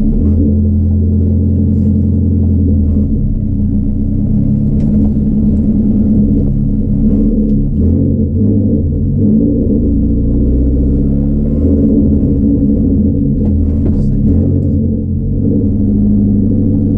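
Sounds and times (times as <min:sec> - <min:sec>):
car engine droning at low revs: 0:00.0 - 0:16.9.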